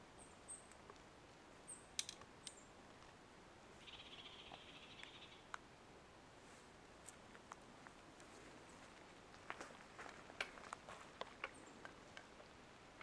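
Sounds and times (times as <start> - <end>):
small birds chirping: 0.2 - 0.8, 3.8 - 5.6.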